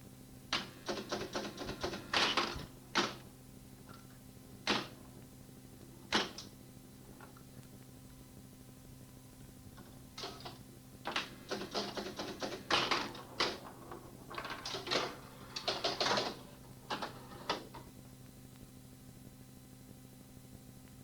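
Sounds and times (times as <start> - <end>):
mechanical clicking and clattering: 9.8 - 17.9.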